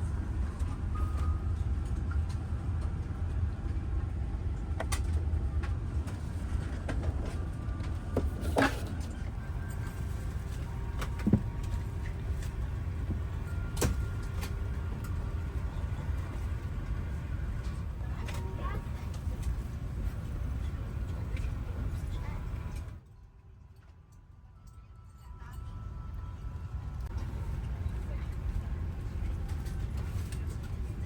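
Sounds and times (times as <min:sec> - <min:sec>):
aircraft cabin ventilation hum: 0:04.6 - 0:23.0, 0:27.0 - 0:31.0.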